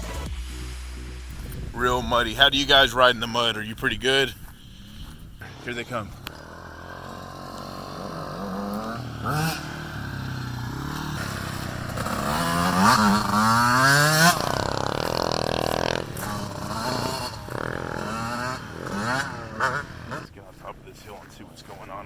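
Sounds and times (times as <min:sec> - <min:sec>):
dirt bike and quad engines revving: 0:01.2 - 0:22.0.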